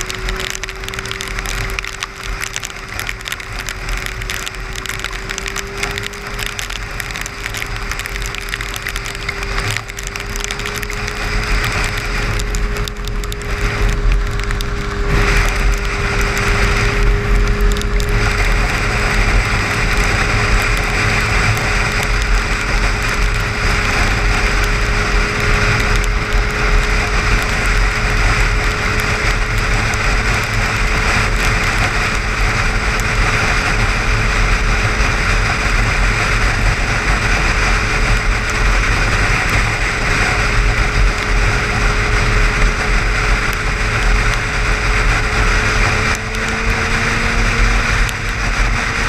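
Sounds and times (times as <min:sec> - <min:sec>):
light ticks: 0:00.0 - 0:32.2
car road and tyre noise: 0:00.0 - 0:49.0.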